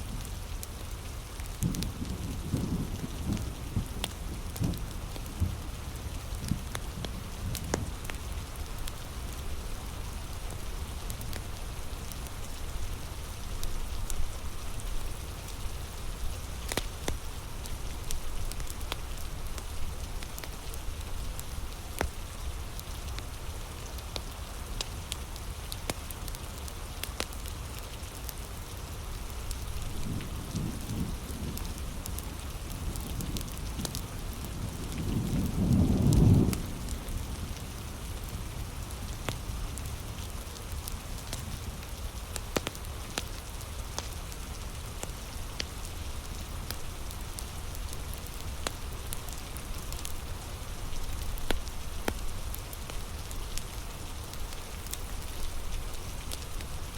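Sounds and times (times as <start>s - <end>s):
heavy rain: 0.0s - 56.9s
low rumble of thunder: 1.5s - 22.7s, 29.7s - 40.0s.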